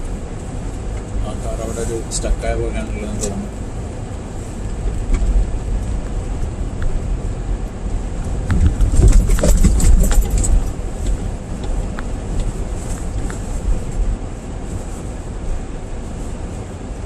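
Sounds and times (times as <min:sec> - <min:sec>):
tyres and engine rumble: 0:00.0 - 0:17.0
sharp clicks and knocks: 0:08.4 - 0:13.4.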